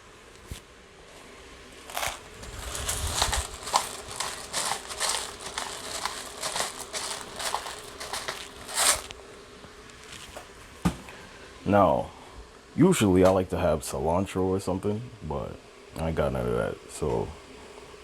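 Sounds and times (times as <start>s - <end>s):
gritty crackling of pepper: 1.8s - 9.2s.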